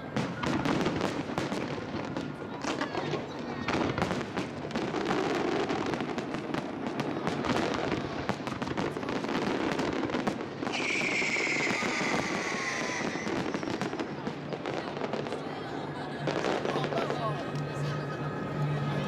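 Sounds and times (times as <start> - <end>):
fireworks cracking and banging: 0.0 - 18.5
high firework whistle: 10.6 - 14.3.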